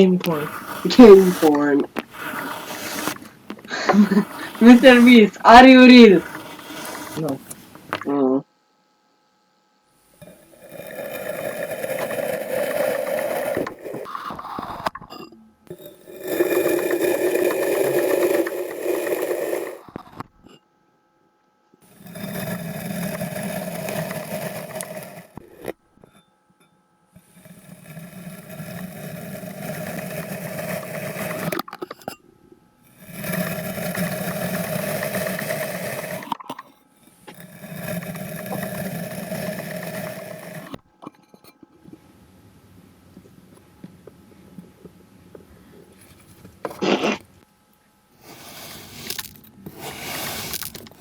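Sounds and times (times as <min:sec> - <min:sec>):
kinetic sand scraping and crunching: 0:00.0 - 0:07.7.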